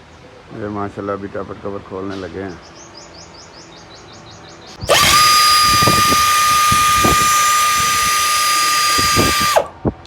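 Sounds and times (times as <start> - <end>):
power tool motor whirring: 4.8 - 9.7.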